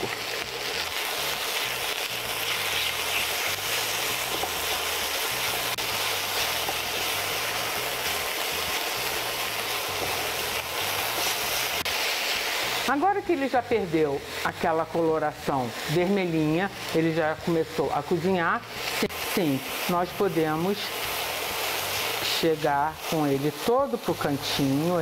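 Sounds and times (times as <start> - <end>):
spatula stirring in a wok: 0.0 - 12.9, 18.6 - 23.7
chicken sizzling in a wok: 0.0 - 25.0.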